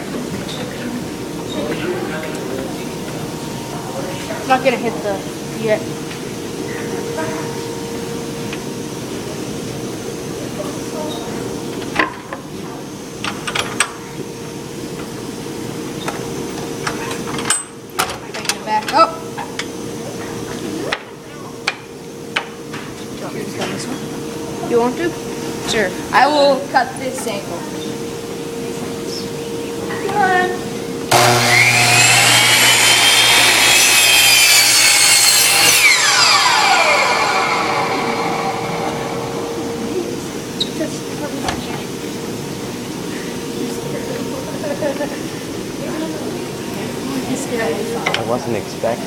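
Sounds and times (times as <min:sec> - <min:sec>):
fan-like whirring hum: 0:00.0 - 0:49.0
mitre saw cutting wood: 0:31.1 - 0:39.8
saw blade spinning down whine: 0:31.1 - 0:41.4.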